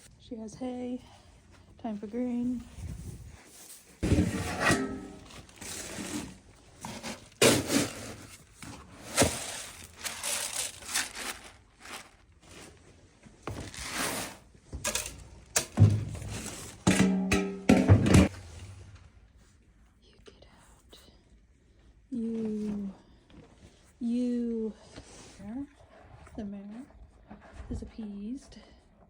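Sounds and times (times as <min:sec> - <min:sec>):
feed bucket knocks and thuds: 0:04.0 - 0:08.3, 0:14.8 - 0:18.9
grain scooping and pouring: 0:08.8 - 0:12.6, 0:13.5 - 0:15.0.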